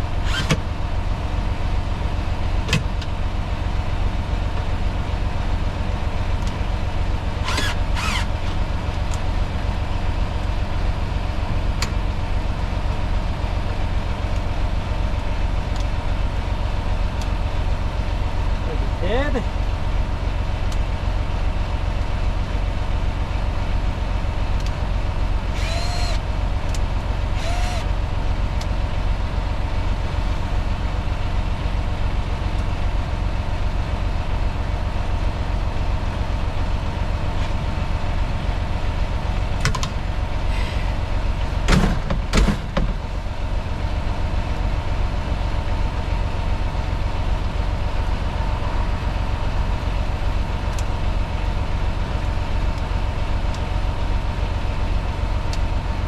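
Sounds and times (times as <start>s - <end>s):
clunks: 0.2s - 0.6s, 7.4s - 8.6s, 25.6s - 26.8s, 27.4s - 27.9s
short knocks and squeaks: 0.2s - 0.6s, 7.5s - 8.4s.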